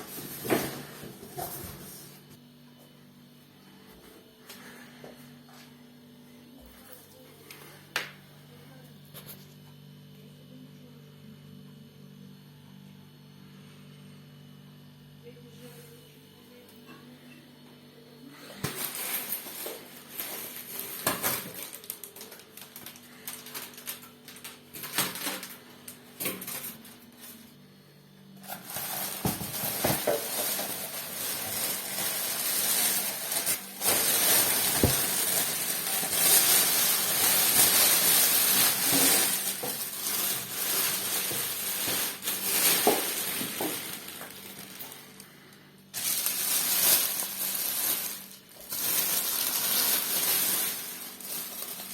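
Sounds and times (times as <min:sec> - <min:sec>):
rustling and scraping: 0:28.4 - 0:45.2.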